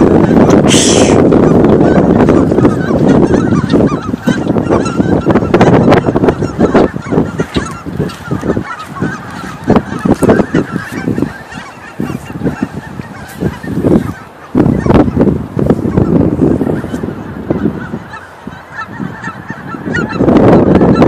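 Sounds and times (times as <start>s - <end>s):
geese honking: 0.0s - 21.0s.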